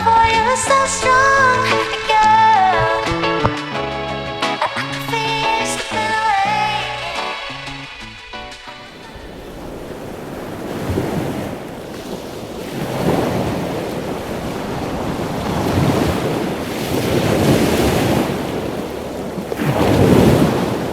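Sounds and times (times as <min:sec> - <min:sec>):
water washing in: 0:00.0 - 0:03.9, 0:08.7 - 0:20.9
wind buffeting microphone: 0:00.0 - 0:04.4, 0:08.4 - 0:20.9.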